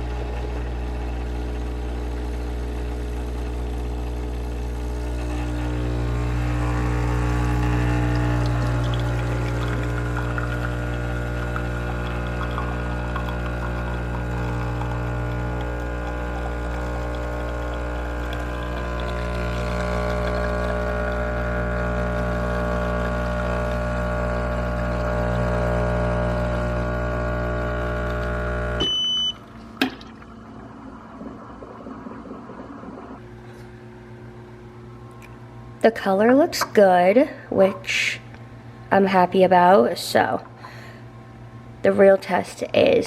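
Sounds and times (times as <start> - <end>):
espresso machine pump running: 0.0 - 38.1
short beep: 28.8 - 29.4.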